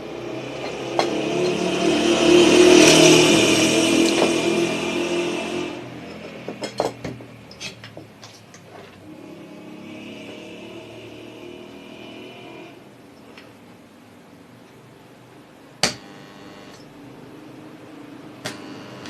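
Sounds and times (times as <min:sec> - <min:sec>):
sewing machine motor winding down: 0:00.0 - 0:06.4, 0:09.0 - 0:12.8
quiet steady whine: 0:00.0 - 0:19.0
sharp clicks and knocks: 0:06.0 - 0:09.0.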